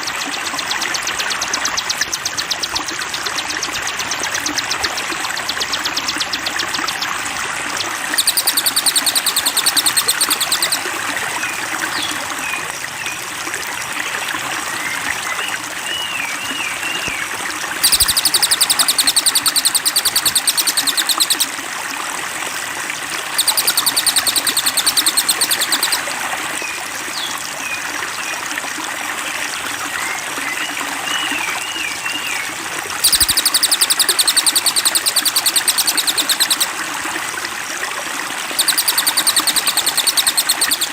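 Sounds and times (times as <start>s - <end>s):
rapid high-pitched bird trill: 0.0s - 7.2s, 7.8s - 10.8s, 17.8s - 21.5s, 23.4s - 26.0s, 33.0s - 36.7s, 38.5s - 40.9s
flowing water: 0.0s - 40.9s
whistled bird phrases: 7.8s - 10.8s, 17.8s - 21.5s, 23.4s - 26.0s, 33.0s - 36.7s, 38.6s - 40.9s.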